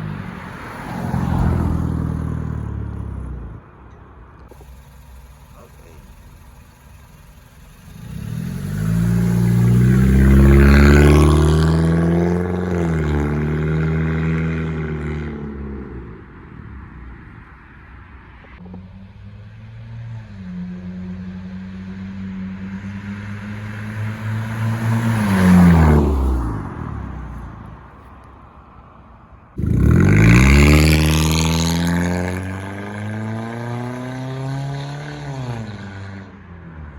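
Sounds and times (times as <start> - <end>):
loud car exhaust passing by: 0.0 - 3.8, 4.5 - 27.9, 29.5 - 36.9.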